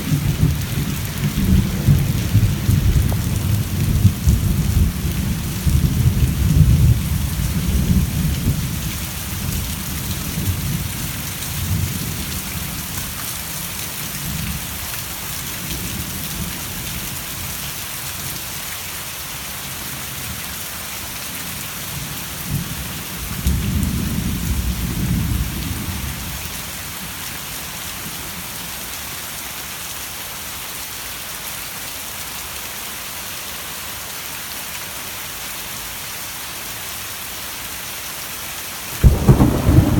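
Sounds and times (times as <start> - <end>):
low thunder rumbling: 0.0 - 8.7, 39.0 - 39.9
heavy rain falling: 0.0 - 39.9.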